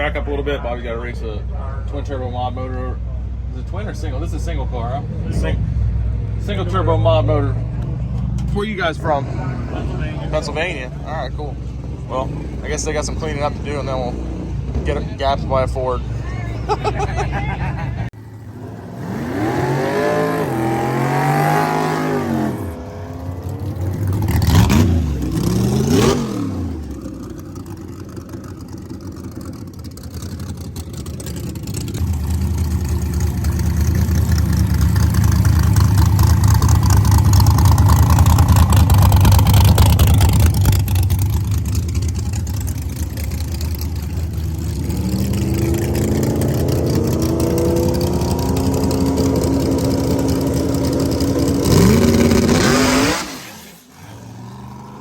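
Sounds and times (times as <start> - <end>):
racing car engines revving: 4.0 - 55.0
loud low engine drone: 32.0 - 52.7.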